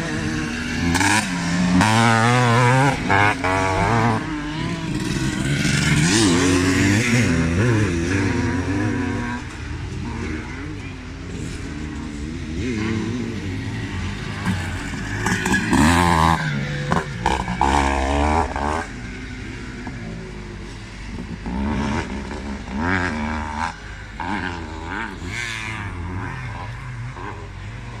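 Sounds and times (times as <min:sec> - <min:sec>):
motocross motorcycles revving past: 0:00.0 - 0:28.0.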